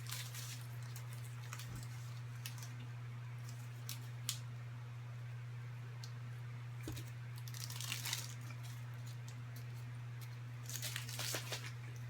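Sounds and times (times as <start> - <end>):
crinkling and crunching: 0.0 - 4.5, 6.8 - 12.0
steady low hum: 0.0 - 12.0.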